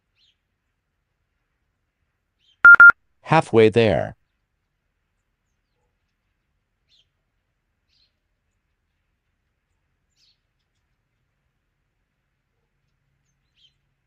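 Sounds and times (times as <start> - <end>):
faint bird chirps: 2.4 - 2.9.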